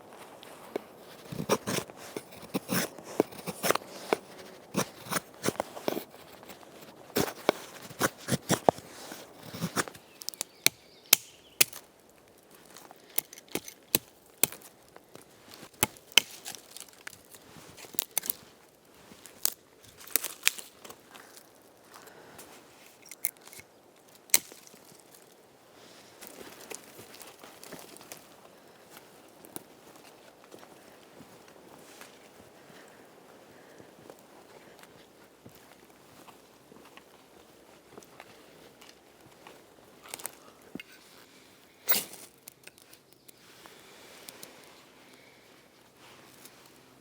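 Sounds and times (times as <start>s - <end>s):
firewood chopping and splitting: 0.6s - 11.9s, 13.1s - 14.7s, 15.6s - 17.2s, 24.3s - 24.8s.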